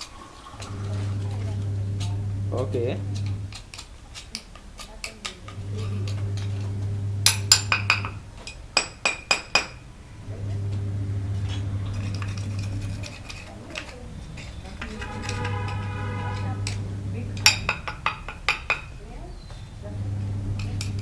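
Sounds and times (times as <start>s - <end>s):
steady low hum: 0.6s - 3.7s, 5.3s - 8.5s, 9.9s - 18.0s, 19.0s - 21.0s
metal burner parts clinking: 20.5s - 21.0s.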